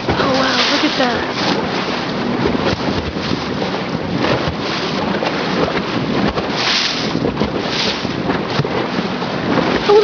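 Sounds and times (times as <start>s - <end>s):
boat noise: 0.0s - 10.0s
water rushing: 0.0s - 10.0s
wind buffeting microphone: 0.0s - 10.0s.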